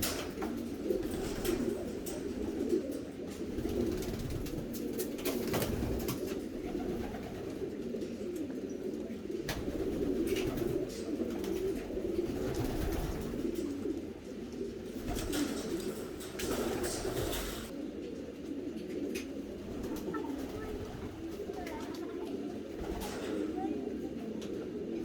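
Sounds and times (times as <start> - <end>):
pigeons cooing: 0.0 - 25.0.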